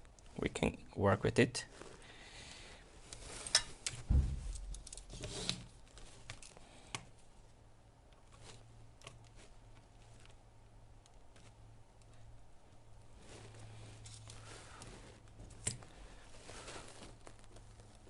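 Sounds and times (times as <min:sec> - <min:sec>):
small parts clicking and rustling: 0:03.1 - 0:07.2, 0:11.0 - 0:18.0
dull thump: 0:04.1 - 0:04.9.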